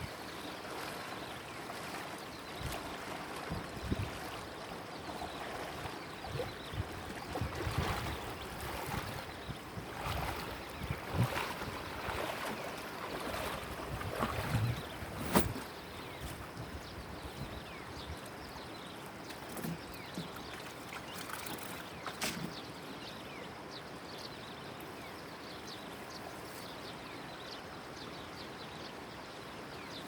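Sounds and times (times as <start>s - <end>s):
water lapping against boat hull: 0.0s - 22.9s.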